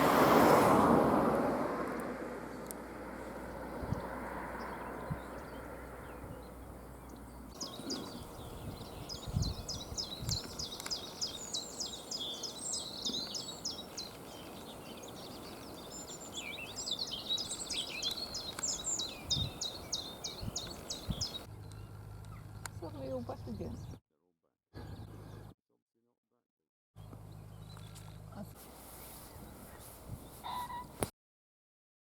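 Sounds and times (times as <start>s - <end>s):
songbird chirps and trills: 2.5s - 24.0s.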